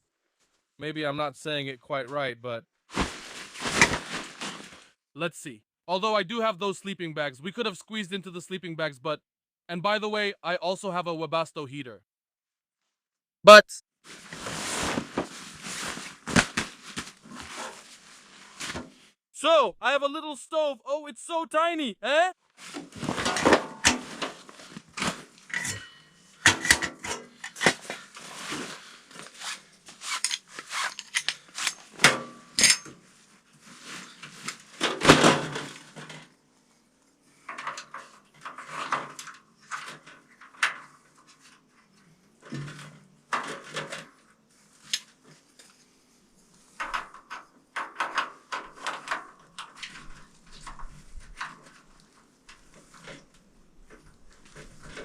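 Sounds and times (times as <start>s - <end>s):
rustling: 2.9s - 4.9s, 14.1s - 19.2s, 33.0s - 35.0s
metal stove parts clanking: 25.5s - 27.8s, 31.0s - 32.9s.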